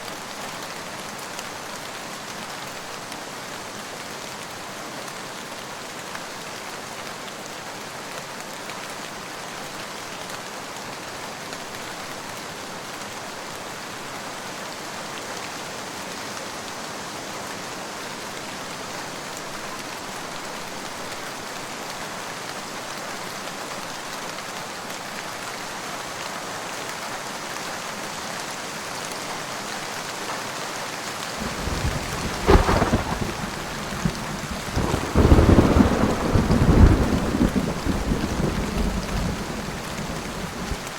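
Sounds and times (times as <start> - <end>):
steady rain: 0.0 - 40.9
thunder cracks and rumble: 31.4 - 40.9.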